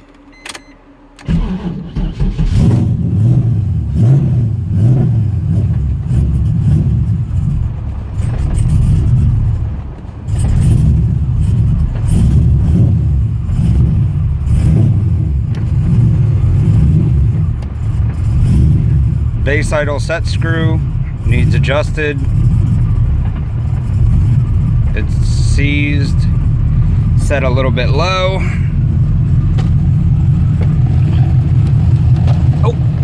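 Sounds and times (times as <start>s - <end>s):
car engine starting and idling: 0.0s - 33.0s
person talking: 19.4s - 22.3s, 24.9s - 26.4s, 27.2s - 28.8s, 32.6s - 33.0s.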